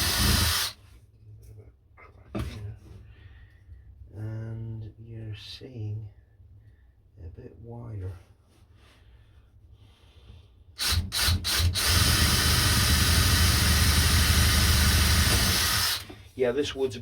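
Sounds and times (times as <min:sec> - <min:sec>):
electric jigsaw cutting wood: 0:00.0 - 0:00.8, 0:10.8 - 0:16.1.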